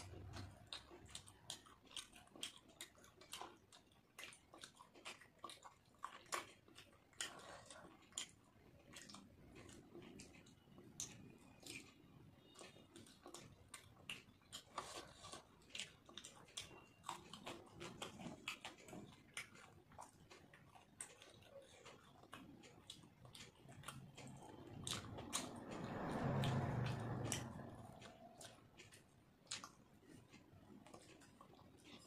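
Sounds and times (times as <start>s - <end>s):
person chewing with mouth clicks: 0.0s - 32.0s.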